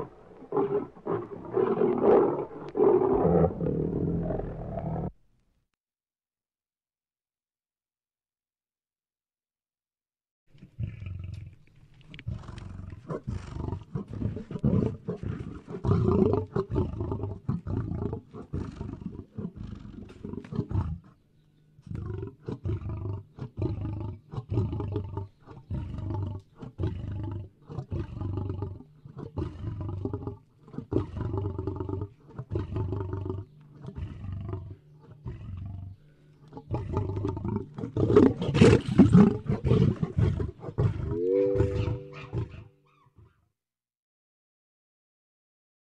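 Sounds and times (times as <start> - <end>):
lion roaring: 0.0 - 5.2, 21.9 - 42.7.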